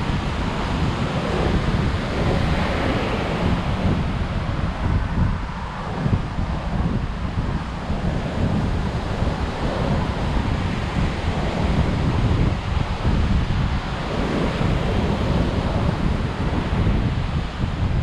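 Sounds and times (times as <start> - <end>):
surf breaking on beach: 0.0 - 5.7
wind buffeting microphone: 0.0 - 18.0.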